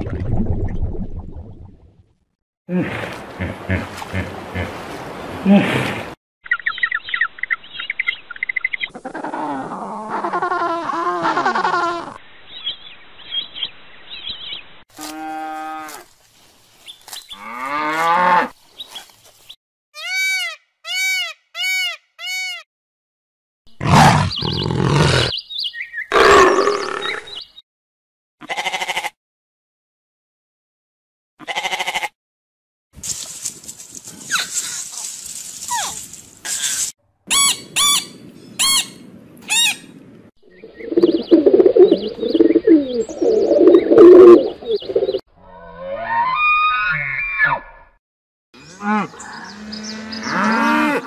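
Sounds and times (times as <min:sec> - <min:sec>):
animal calls: 0:23.8 - 0:25.4, 0:26.1 - 0:27.4
cattle mooing: 0:48.6 - 0:51.0.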